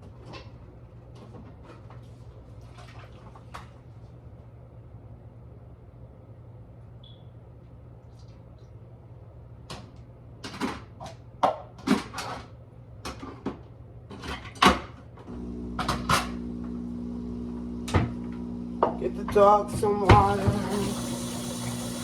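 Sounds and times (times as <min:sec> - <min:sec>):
electric appliance hum: 0:15.2 - 0:22.0.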